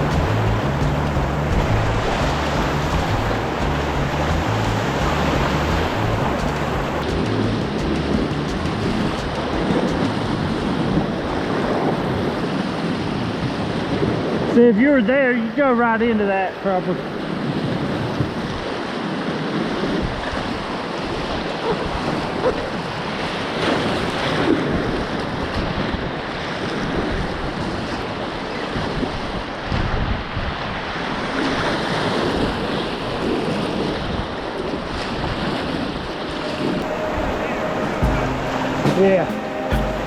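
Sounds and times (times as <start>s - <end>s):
river water rushing: 0.0s - 14.2s, 34.4s - 40.0s
wind buffeting microphone: 0.0s - 14.5s.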